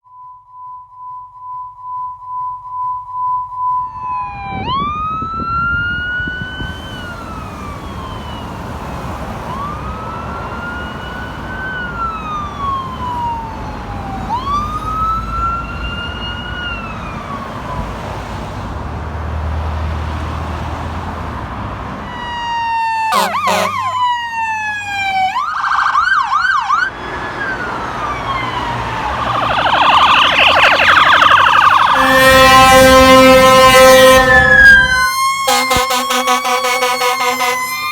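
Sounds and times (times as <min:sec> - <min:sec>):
electronic siren wailing and yelping: 0:22.2 - 0:37.9
air horn blast: 0:23.1 - 0:24.0, 0:29.5 - 0:37.9.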